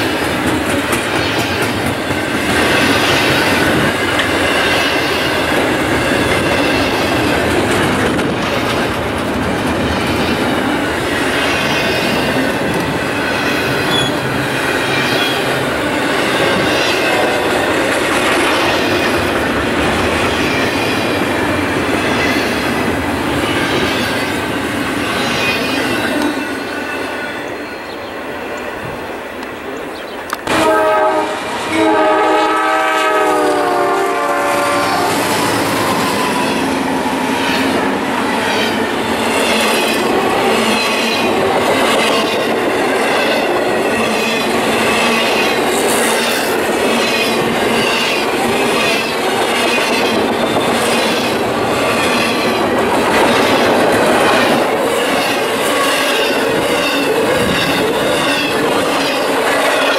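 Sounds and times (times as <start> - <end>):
train cars rumbling past: 0.0 - 59.9
locomotive air horn: 30.5 - 35.4.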